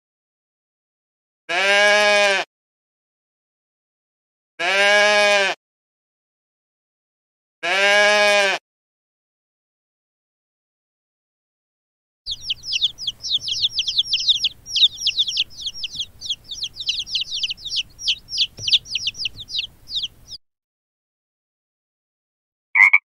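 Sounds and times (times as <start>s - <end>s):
baby chicks peeping: 12.3s - 20.4s.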